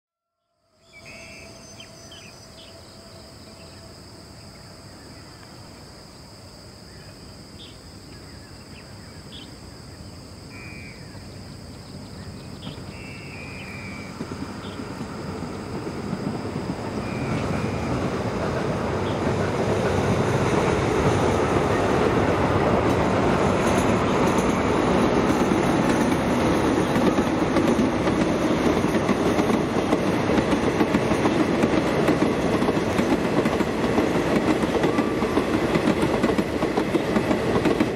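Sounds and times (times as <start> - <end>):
diesel locomotive engine: 11.0 - 37.9
train wheels on rails: 12.0 - 37.9.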